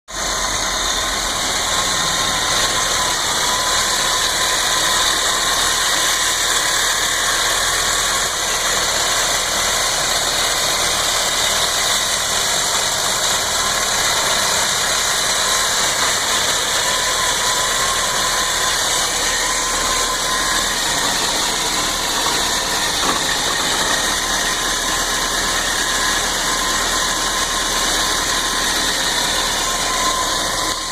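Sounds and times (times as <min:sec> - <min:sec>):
car engine idling: 0:00.1 - 0:30.9.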